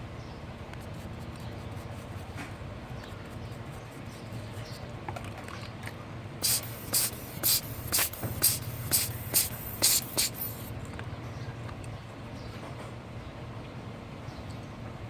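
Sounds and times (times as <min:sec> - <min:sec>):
quick hissing spurts: 0:06.4 - 0:10.7
steady low hum: 0:06.4 - 0:10.8.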